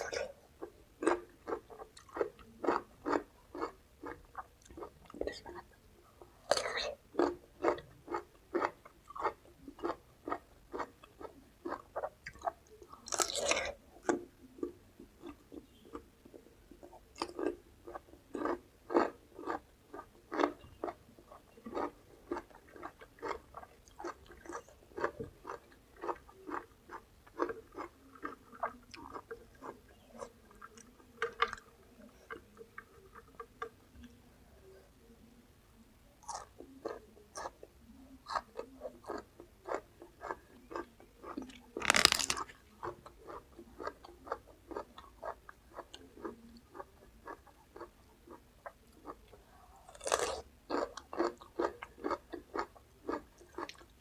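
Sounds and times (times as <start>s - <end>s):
chewing crunchy raw vegetables: 0.0s - 34.2s, 36.2s - 54.0s.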